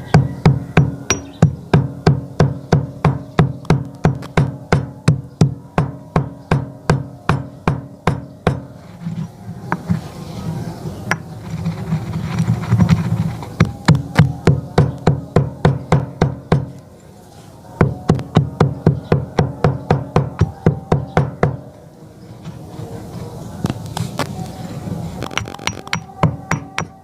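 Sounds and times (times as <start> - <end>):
background music: 13.3 - 27.0.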